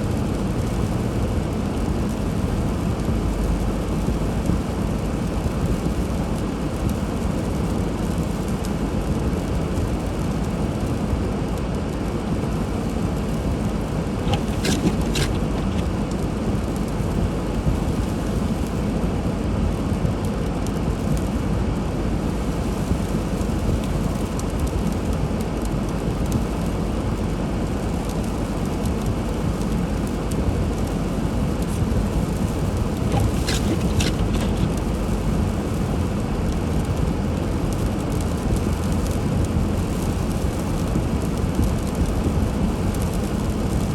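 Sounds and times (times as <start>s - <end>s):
tyres hissing through slush: 14.2s - 16.0s, 31.7s - 35.5s.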